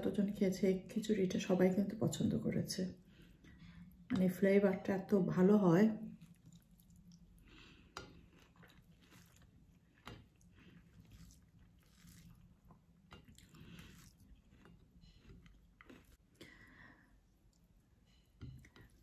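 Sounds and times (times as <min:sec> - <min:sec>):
faint chewing: 0:06.1 - 0:19.0.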